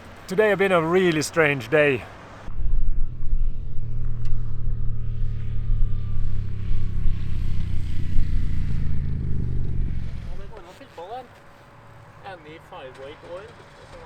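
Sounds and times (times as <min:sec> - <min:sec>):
motorcycle engine running: 0:02.5 - 0:10.7.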